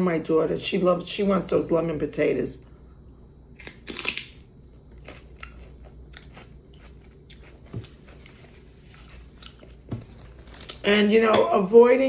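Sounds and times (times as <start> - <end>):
person chewing food: 3.0 - 10.8.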